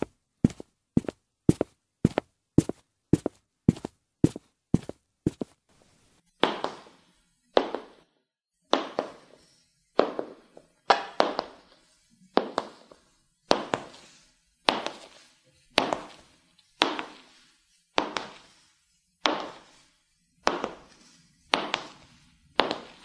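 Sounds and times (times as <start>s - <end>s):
high heels clicking on hard floor: 0.0s - 5.6s, 6.4s - 7.0s, 7.6s - 8.0s, 8.7s - 9.3s, 10.0s - 11.6s, 12.4s - 14.0s, 14.7s - 15.2s, 15.8s - 17.3s, 18.0s - 18.5s, 19.2s - 19.7s, 20.4s - 20.9s, 21.5s - 23.0s.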